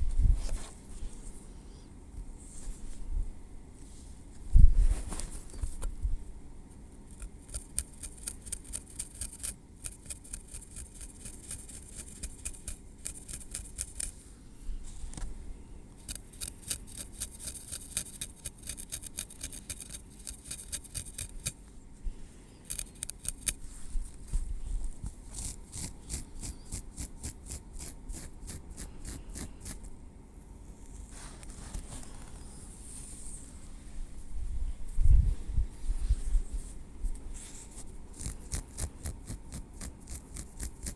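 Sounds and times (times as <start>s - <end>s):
metal tweezers clicking and scraping: 7.1s - 14.1s, 16.0s - 21.6s, 22.6s - 23.6s.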